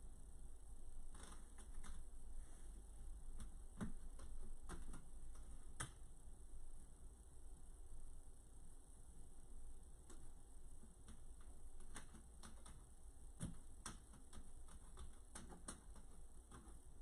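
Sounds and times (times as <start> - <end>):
steady low hum: 0.0 - 17.0
light clicks and taps: 3.3 - 6.0, 10.0 - 16.9.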